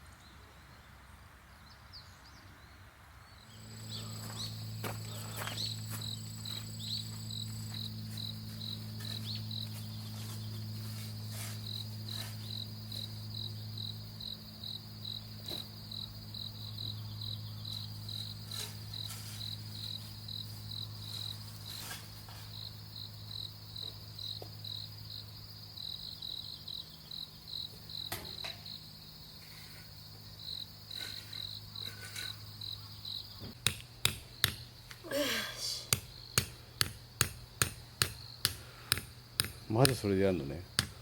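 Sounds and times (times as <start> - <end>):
low steady hum: 3.2 - 21.7
crickets chirping: 3.3 - 41.0
hammer striking: 33.6 - 34.7, 35.9 - 40.1, 40.7 - 41.0.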